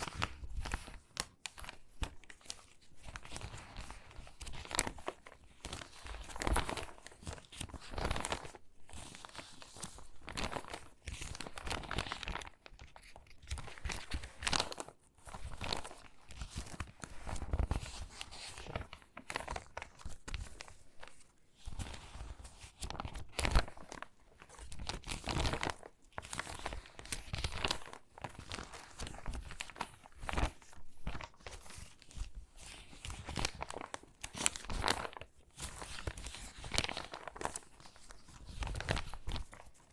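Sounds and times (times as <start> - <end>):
magazine pages crinkling: 0.0 - 39.9.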